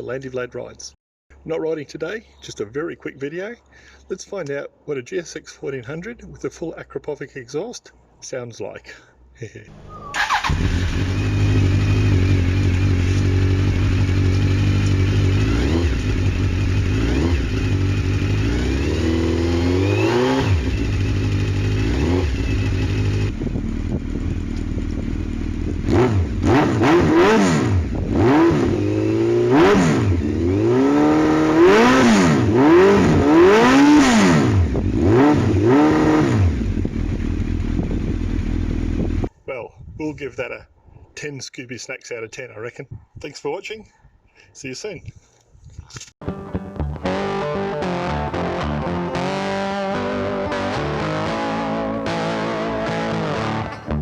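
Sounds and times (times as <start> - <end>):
motorcycle engine idling and revving: 9.9 - 39.3.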